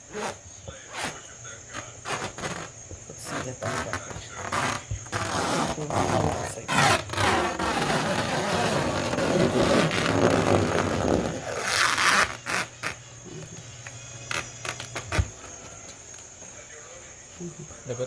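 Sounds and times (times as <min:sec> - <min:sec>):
cling wrap crinkling: 0:00.1 - 0:13.5.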